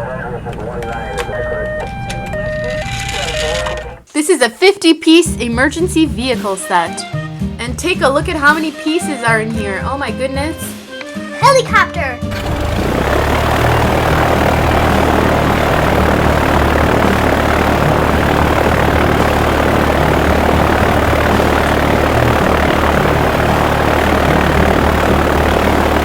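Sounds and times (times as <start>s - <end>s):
helicopter engine and rotor drone: 0.0s - 4.0s, 12.2s - 26.0s
low hum: 12.3s - 26.0s.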